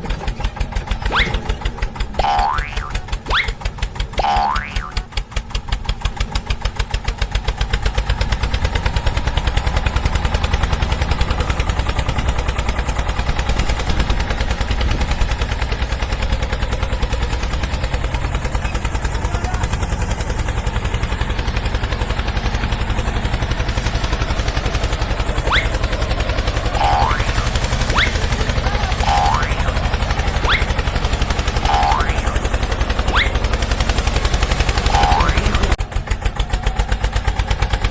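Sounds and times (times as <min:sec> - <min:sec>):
fast engine-like chugging: 0:00.0 - 0:37.9
short rising whistles: 0:01.0 - 0:01.5, 0:02.8 - 0:03.6, 0:25.4 - 0:26.0, 0:26.8 - 0:28.3, 0:30.4 - 0:30.9, 0:33.0 - 0:33.6.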